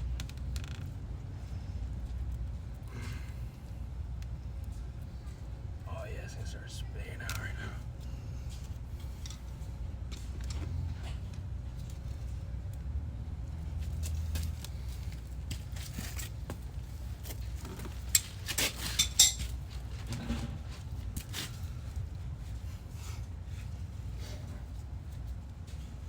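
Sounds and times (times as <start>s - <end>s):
steady low rumble: 0.0s - 18.2s
metallic clinks and clanks: 18.0s - 19.6s.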